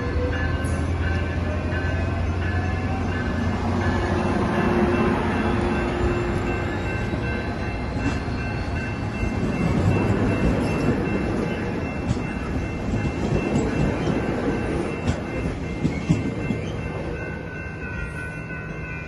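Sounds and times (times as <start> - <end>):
train wheels rumbling on rails: 0.0 - 19.0
wheels clicking over rail joints: 9.3 - 17.1.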